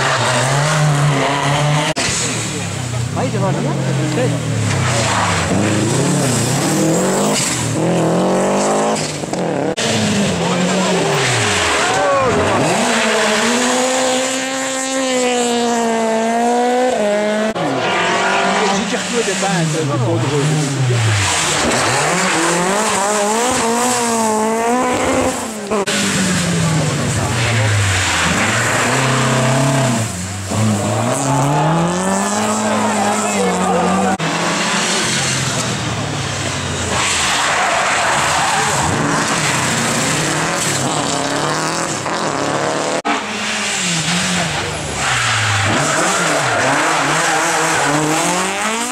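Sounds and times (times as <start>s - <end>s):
car engine at high revs: 0.0s - 48.9s.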